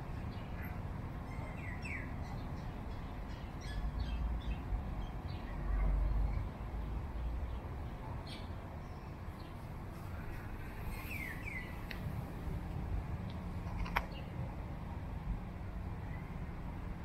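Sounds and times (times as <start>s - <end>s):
small birds chirping: 0.1s - 12.1s
steady low rumble: 2.3s - 17.0s.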